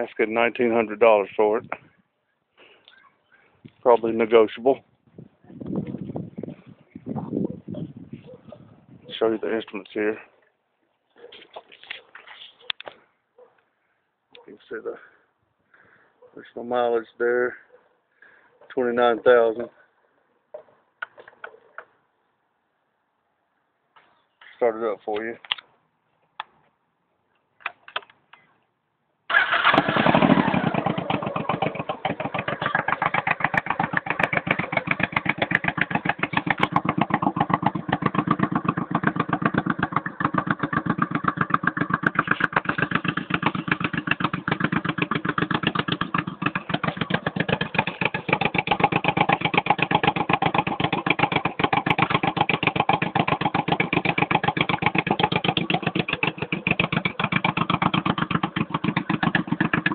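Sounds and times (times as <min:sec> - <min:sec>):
motorcycle engine idling: 0:29.4 - 0:59.9.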